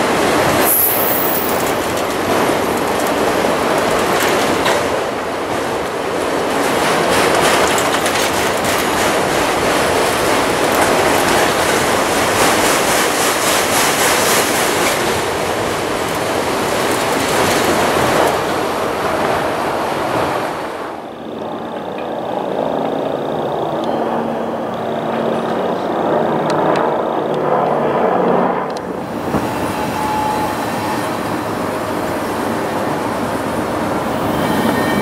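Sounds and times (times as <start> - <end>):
wheels clacking over rail joints: 0.0 - 20.4
train wheels on rail: 0.0 - 35.0.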